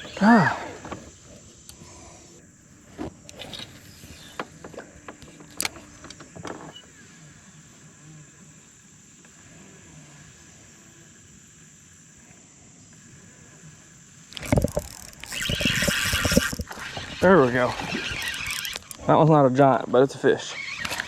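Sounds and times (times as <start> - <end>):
fishing gear clicks and knocks: 2.9 - 6.7, 14.3 - 19.1.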